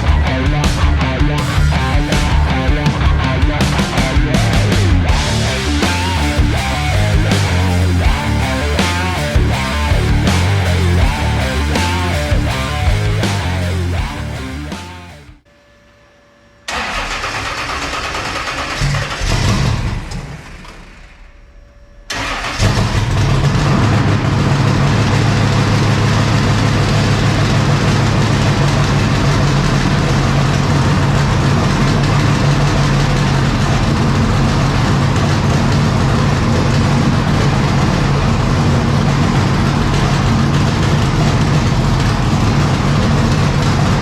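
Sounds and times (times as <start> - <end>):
engine idling: 0.0 - 15.3, 22.2 - 44.0
engine burst: 16.7 - 21.4, 22.1 - 44.0.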